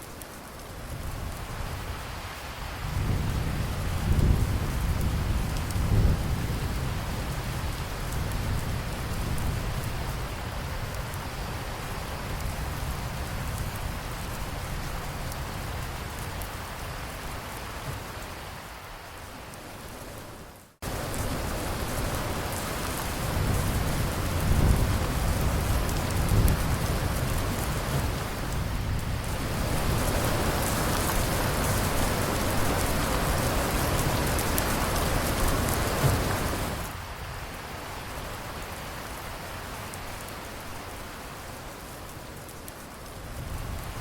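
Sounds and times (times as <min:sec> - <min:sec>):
rain pattering: 0:00.0 - 0:44.0
low thunder rumbles: 0:02.8 - 0:16.4, 0:20.8 - 0:38.4.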